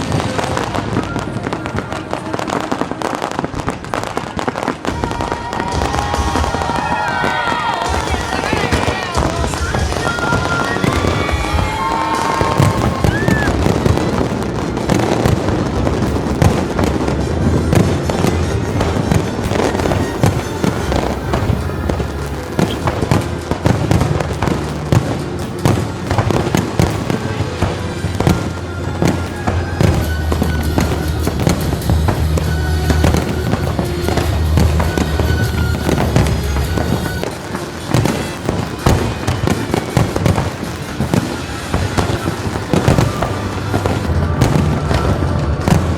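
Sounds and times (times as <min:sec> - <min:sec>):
fireworks bangs and crackles: 0:00.0 - 0:45.9
music with low bass: 0:27.9 - 0:37.3.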